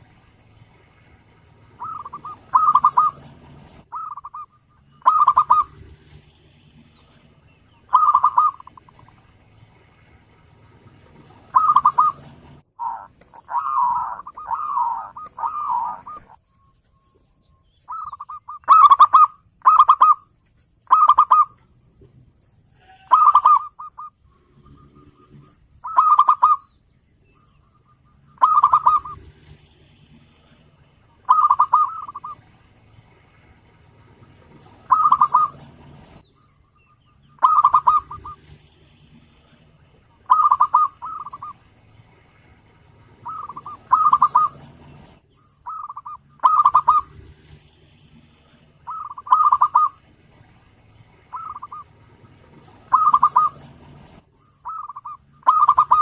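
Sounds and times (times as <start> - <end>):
dove cooing: 1.6 - 5.8, 7.7 - 9.2, 10.9 - 16.4, 17.9 - 21.6, 22.8 - 26.7, 28.2 - 29.6, 31.2 - 32.5, 34.3 - 36.2, 37.4 - 38.6, 39.4 - 41.7, 43.2 - 47.2, 48.5 - 50.1, 51.2 - 56.0.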